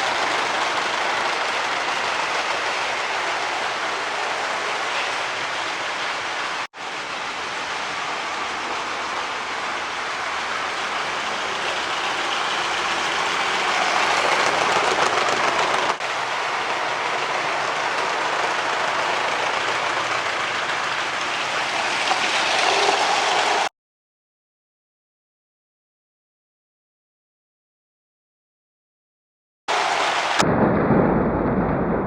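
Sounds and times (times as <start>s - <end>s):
toy trains rattling on track: 0.0s - 23.7s.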